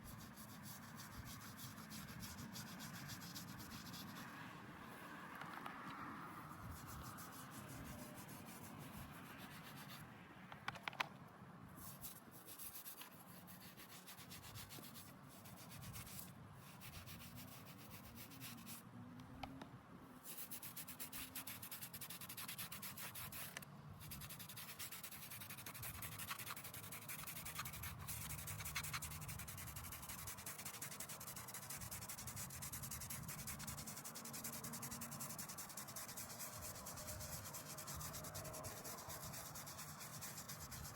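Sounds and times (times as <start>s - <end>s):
hand rubbing stone surface: 0.0s - 4.3s, 11.8s - 18.8s, 20.2s - 40.9s.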